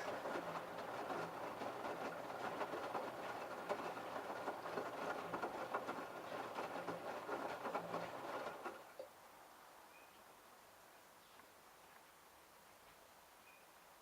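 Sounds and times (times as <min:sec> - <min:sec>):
washing machine laundry tumbling: 0:00.0 - 0:08.9.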